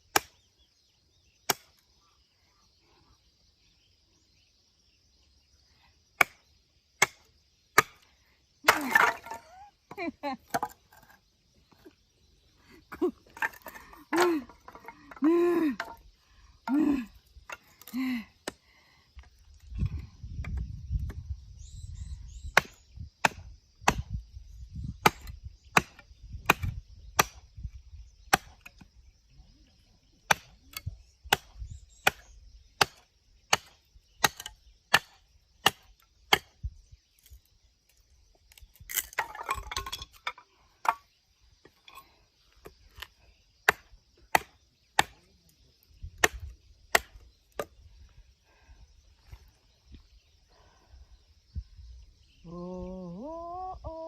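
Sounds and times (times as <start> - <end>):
axe chopping firewood: 0.0 - 0.4, 1.4 - 1.8, 6.2 - 8.0, 8.6 - 9.5, 10.5 - 11.2, 13.4 - 16.0, 22.5 - 24.2, 25.0 - 27.5, 28.3 - 28.9, 30.3 - 36.6, 38.8 - 41.1, 42.6 - 45.3, 46.2 - 47.7.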